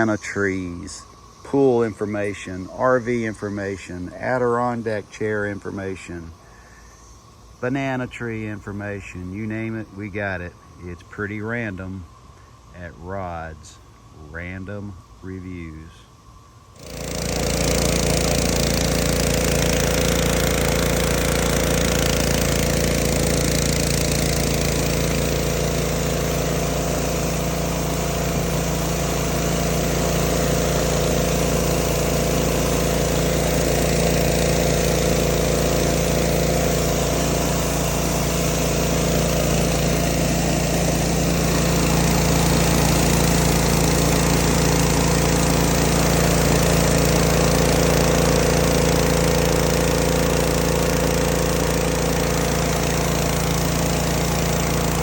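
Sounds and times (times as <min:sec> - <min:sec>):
pressure washer engine hum: 0:00.0 - 0:55.0
water spray hissing: 0:16.7 - 0:55.0.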